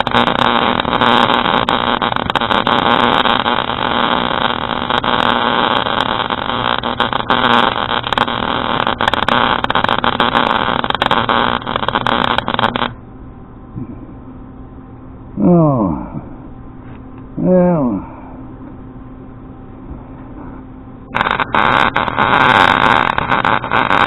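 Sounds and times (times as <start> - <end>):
welder arc crackling: 0.0 - 13.0, 21.1 - 24.0.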